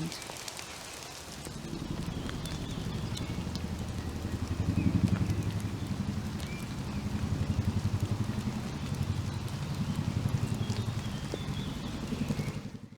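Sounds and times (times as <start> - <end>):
raindrops dripping: 0.0 - 12.9
helicopter rotor chopping: 1.3 - 12.9.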